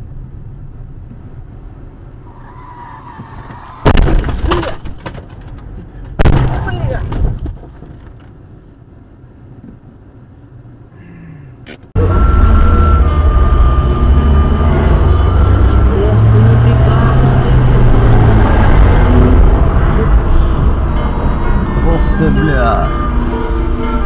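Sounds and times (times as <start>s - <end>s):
vehicle engine and road rumble: 0.0s - 24.0s.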